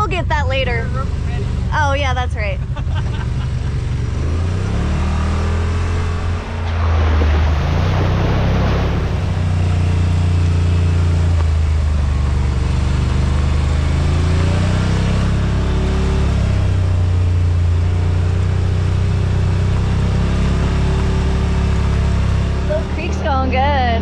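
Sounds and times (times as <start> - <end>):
vehicle engine droning: 0.0 - 24.0
rush of noise: 1.1 - 10.9.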